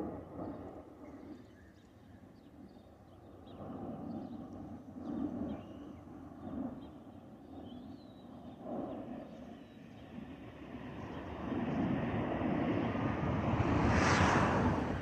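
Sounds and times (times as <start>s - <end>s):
jet engines roaring: 8.2s - 15.0s.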